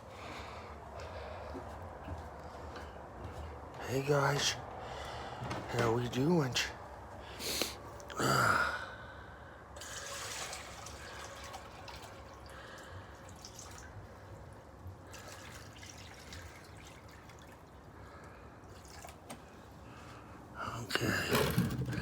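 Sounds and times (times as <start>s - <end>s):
water trickling and dripping: 9.8s - 19.7s.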